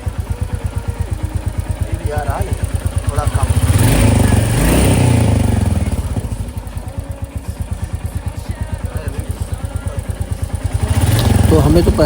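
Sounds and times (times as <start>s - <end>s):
engine tappet ticking: 0.0s - 12.0s
motorcycle engine idling: 0.0s - 12.0s.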